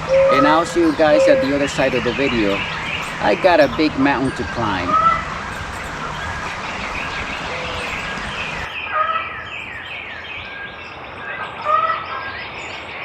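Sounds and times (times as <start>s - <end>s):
short high downward-sliding bird notes: 0.0s - 5.4s
steady background hiss: 0.0s - 8.7s
birds calling: 0.0s - 13.0s.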